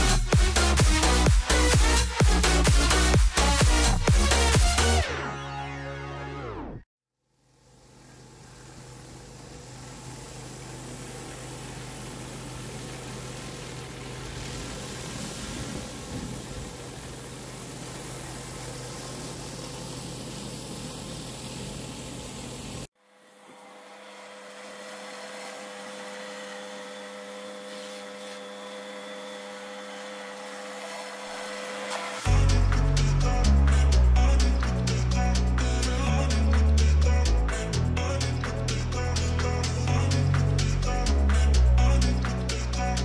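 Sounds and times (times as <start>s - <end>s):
steady machine hum: 7.4s - 36.4s
pressure washer spray hissing: 7.5s - 22.9s, 24.7s - 33.8s.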